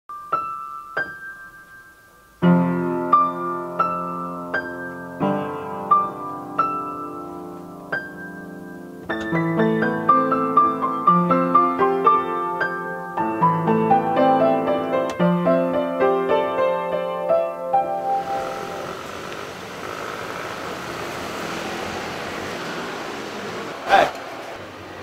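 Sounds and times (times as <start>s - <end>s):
soft piano music: 0.1s - 18.9s.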